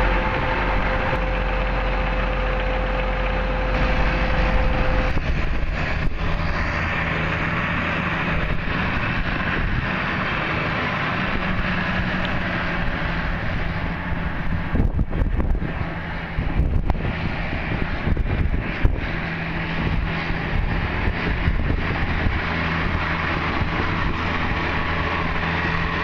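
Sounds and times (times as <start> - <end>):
steady whine: 0.0 - 26.0
tractor diesel engine running: 0.0 - 26.0.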